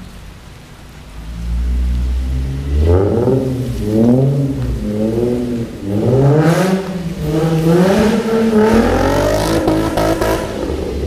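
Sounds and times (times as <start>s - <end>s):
car engine revving: 0.5s - 11.0s.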